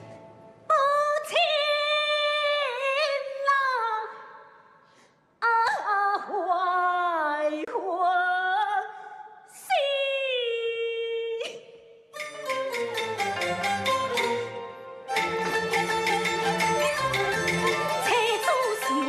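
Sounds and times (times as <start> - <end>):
woman singing opera aria: 0.7 - 4.3, 5.4 - 8.9, 16.6 - 19.0.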